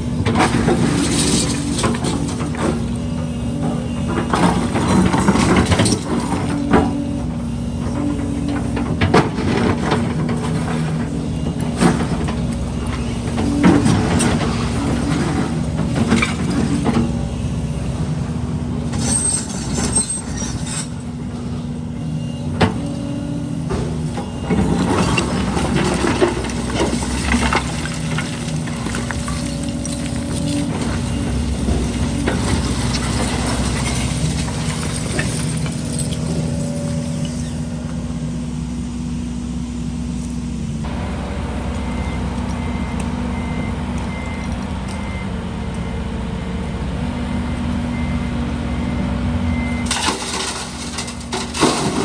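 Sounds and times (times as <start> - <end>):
heavy diesel machinery running: 0.0 - 52.0
metal and rubble clanks: 0.2 - 7.0, 18.9 - 21.4, 23.6 - 37.7, 49.8 - 52.0.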